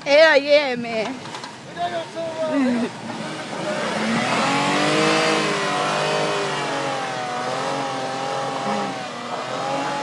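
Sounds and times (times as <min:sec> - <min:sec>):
atv engine running hard: 0:02.0 - 0:10.0.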